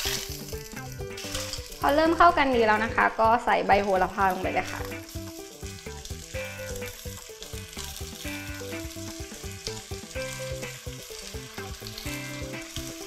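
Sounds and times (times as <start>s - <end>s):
background music: 0.0s - 13.0s
clams sizzling in a wok: 0.0s - 13.0s.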